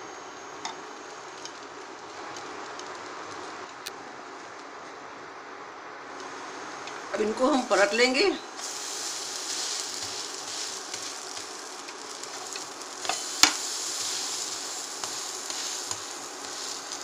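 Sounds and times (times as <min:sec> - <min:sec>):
sandwiches sizzling in a pan: 0:08.6 - 0:17.0.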